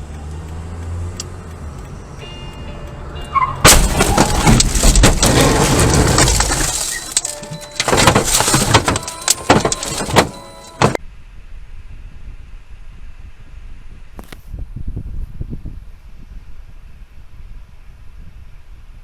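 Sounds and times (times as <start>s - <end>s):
crunching and scraping: 3.6s - 11.0s
loud crash impact: 3.6s - 11.0s
clattering knocks and bangs: 3.7s - 11.0s.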